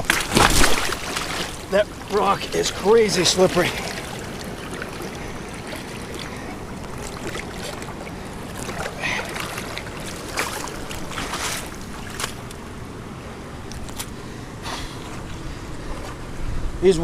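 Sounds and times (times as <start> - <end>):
short splashes or knocks: 0.0 - 2.2, 2.9 - 12.5
river water rushing over rocks: 0.0 - 13.0.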